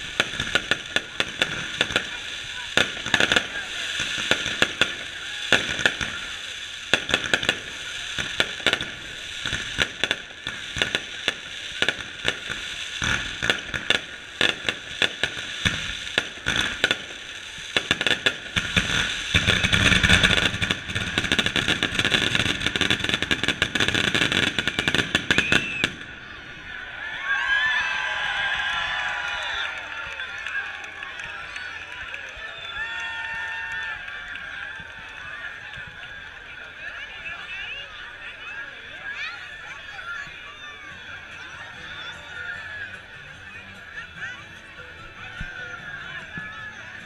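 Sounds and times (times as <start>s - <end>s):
fireworks bangs: 0.0s - 26.7s
fireworks crackling: 0.0s - 26.8s, 27.4s - 47.0s.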